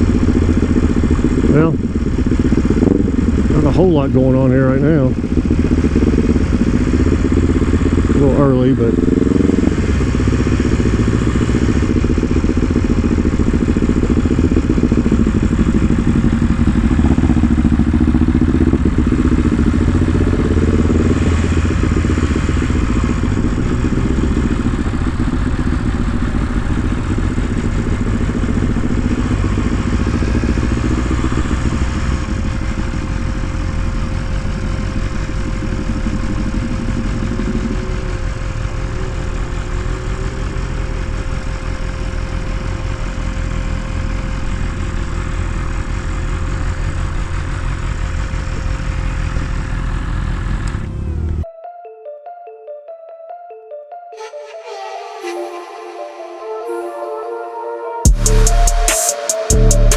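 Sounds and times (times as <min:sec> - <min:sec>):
motorcycle engine running: 0:00.0 - 0:51.5, 0:58.0 - 0:59.9.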